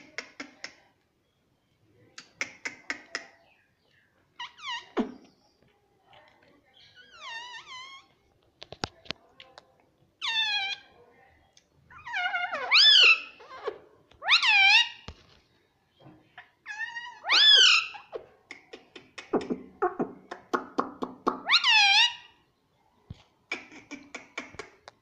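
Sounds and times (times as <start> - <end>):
parrot meow-like calls: 21.4 - 22.3.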